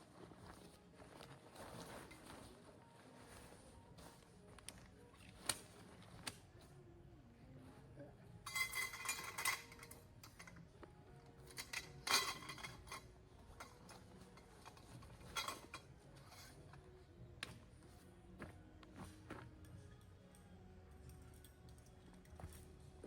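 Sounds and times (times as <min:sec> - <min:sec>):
utensils and dishes clinking: 0:08.4 - 0:10.6, 0:11.4 - 0:16.8.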